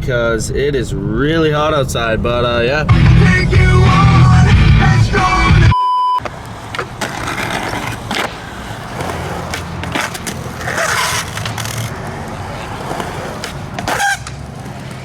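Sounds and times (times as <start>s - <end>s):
skateboard wheels rolling on concrete: 0.0s - 15.0s
skateboard clacks: 6.2s - 15.0s.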